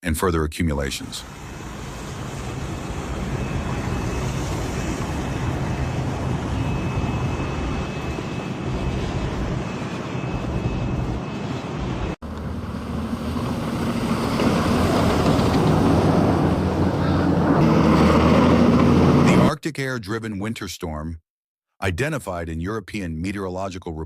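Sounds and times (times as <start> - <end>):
wind noise: 1.2 - 19.3
vehicle traffic rumble: 1.2 - 19.5.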